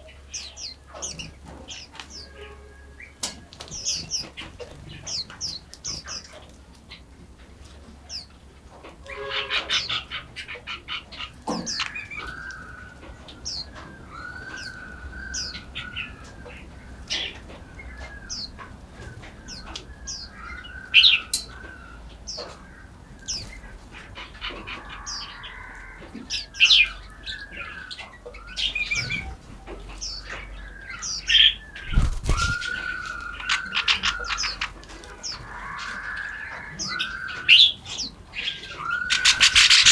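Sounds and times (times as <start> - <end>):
songbirds chirping: 0.0 - 39.9
bird rattling call: 31.8 - 34.8, 38.8 - 39.9.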